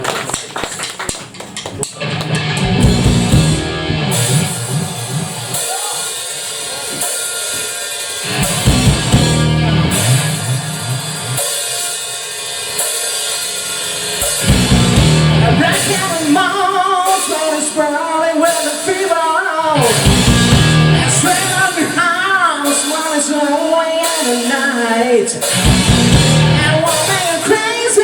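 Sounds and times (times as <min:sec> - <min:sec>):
rock band playing: 0:00.0 - 0:28.0
sharp drum hits: 0:14.2 - 0:16.5.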